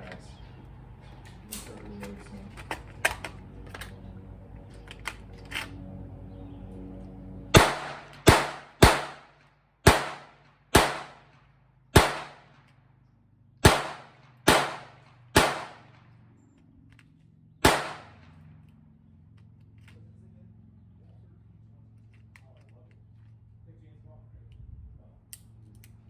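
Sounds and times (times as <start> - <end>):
gunshots: 7.5 - 11.3, 12.0 - 12.5, 13.6 - 16.0, 17.6 - 18.3.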